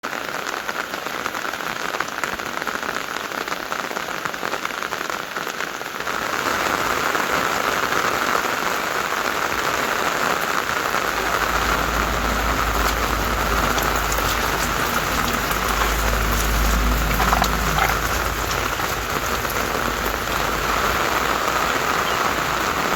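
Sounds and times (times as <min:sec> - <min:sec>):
steady rain falling: 0:00.0 - 0:22.9
low rumble: 0:11.1 - 0:22.0.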